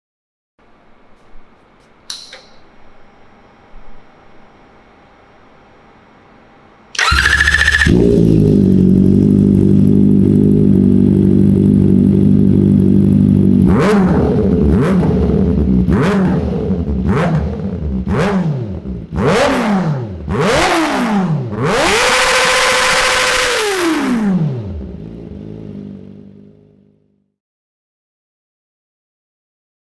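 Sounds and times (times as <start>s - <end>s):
electric starter whir: 6.9s - 9.0s, 21.8s - 24.4s
motorcycle engine revving: 7.0s - 27.3s.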